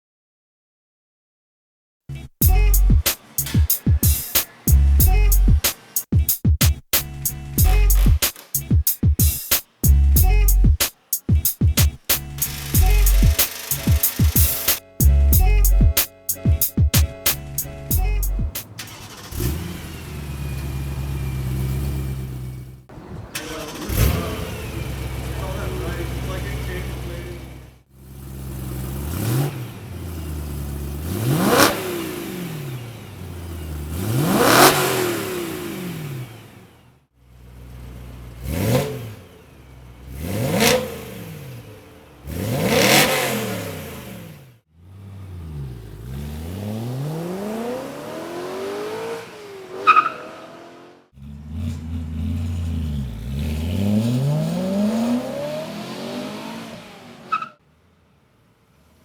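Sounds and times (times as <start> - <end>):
car engine revving: 2.4 - 6.1, 6.9 - 16.0, 17.1 - 57.7
sharp exhaust crack: 2.4 - 27.7.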